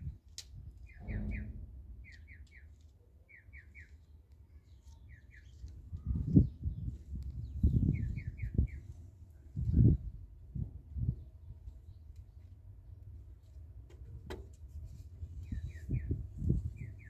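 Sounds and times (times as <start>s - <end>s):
bird chirping: 0.8s - 8.9s.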